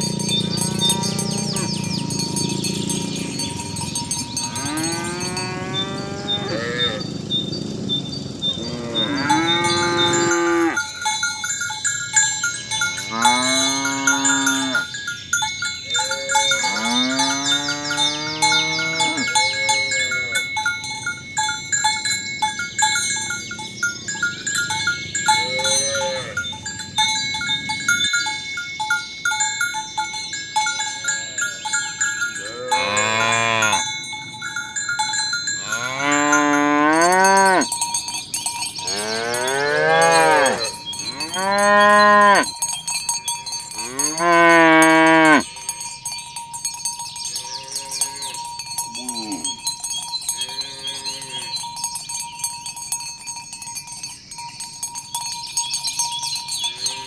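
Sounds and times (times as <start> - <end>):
cows mooing: 0.0 - 11.0, 12.6 - 14.9, 15.9 - 20.5, 25.3 - 26.5, 31.1 - 34.0, 35.6 - 37.8, 38.8 - 42.5, 43.7 - 45.8, 47.4 - 49.6, 50.4 - 51.6, 56.6 - 57.0.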